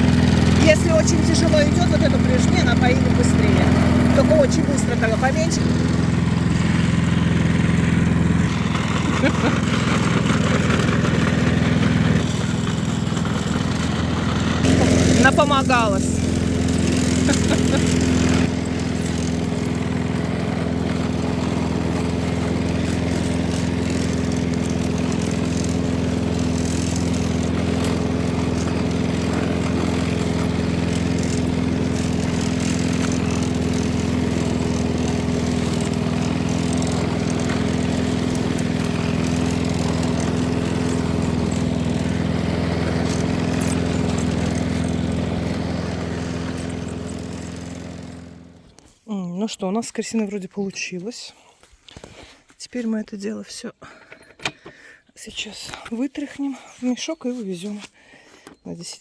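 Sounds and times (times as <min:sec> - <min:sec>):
lawn mower engine running: 0:00.0 - 0:49.0.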